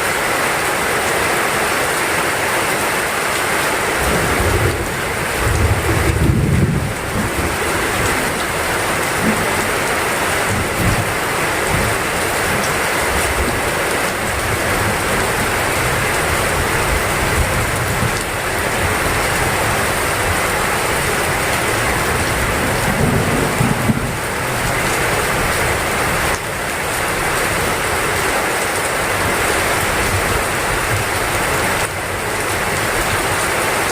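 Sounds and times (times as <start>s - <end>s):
heavy rain pouring: 0.0s - 33.9s
low thunder rumble: 4.1s - 9.6s, 21.3s - 24.8s.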